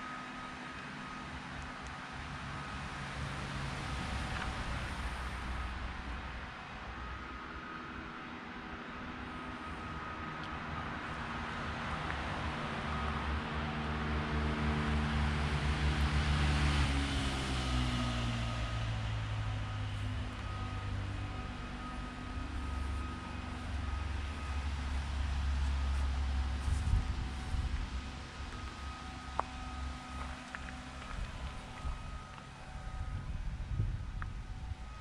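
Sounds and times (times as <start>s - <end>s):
car engine idling: 16.9s - 35.0s.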